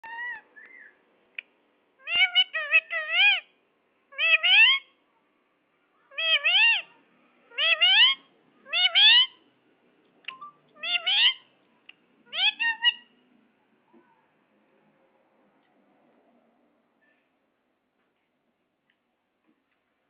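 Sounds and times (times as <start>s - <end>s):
parakeet calls rising in pitch: 2.0s - 3.5s, 4.1s - 4.9s, 6.1s - 9.4s, 10.8s - 11.5s, 12.3s - 13.1s.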